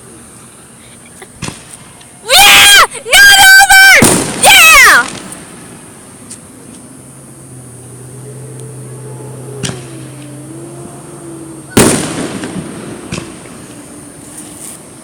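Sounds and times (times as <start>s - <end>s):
fireworks crackling: 0.0s - 7.4s, 11.7s - 15.0s
fireworks cracking: 1.3s - 6.9s, 11.7s - 15.0s
fireworks bang: 1.4s - 1.9s, 3.7s - 5.9s, 9.6s - 10.2s, 11.7s - 14.9s.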